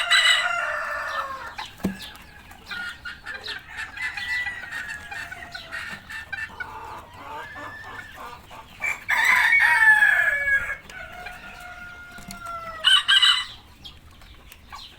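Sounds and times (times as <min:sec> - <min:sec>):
rooster crowing: 0:00.0 - 0:01.6, 0:03.7 - 0:06.0, 0:06.6 - 0:13.6
chickens clucking: 0:00.0 - 0:14.9.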